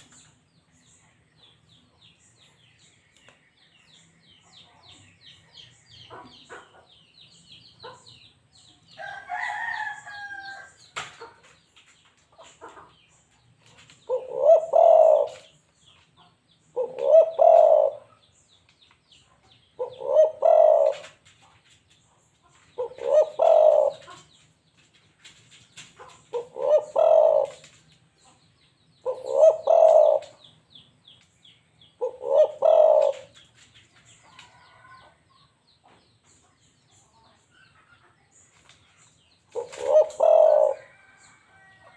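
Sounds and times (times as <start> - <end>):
dove cooing: 14.0 - 15.6, 16.7 - 18.2, 19.8 - 21.2, 22.8 - 24.2, 26.3 - 27.8, 29.0 - 30.4, 32.0 - 33.4, 39.5 - 41.1.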